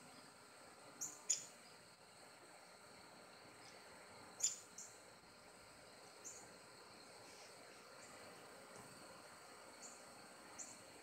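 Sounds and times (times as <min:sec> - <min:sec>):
small birds chirping: 0:00.0 - 0:02.0, 0:03.4 - 0:05.1, 0:06.0 - 0:11.0
faint high-pitched hum: 0:00.0 - 0:11.0.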